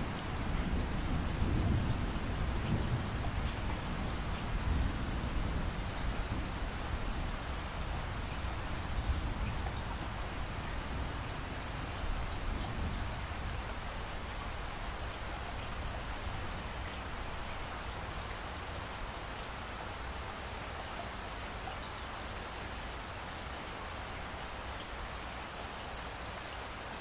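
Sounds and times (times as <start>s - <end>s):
steady rain: 0.0s - 27.0s
raindrop ticks: 2.6s - 3.8s, 23.5s - 23.8s.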